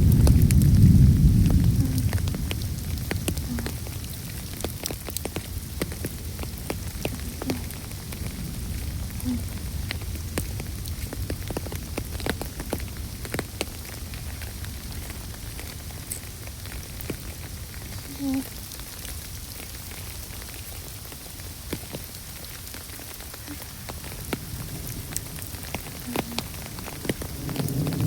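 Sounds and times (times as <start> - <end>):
low rumble: 0.0 - 4.6
raindrops ticking on hard surface: 0.0 - 28.0
steady rain: 0.0 - 28.0.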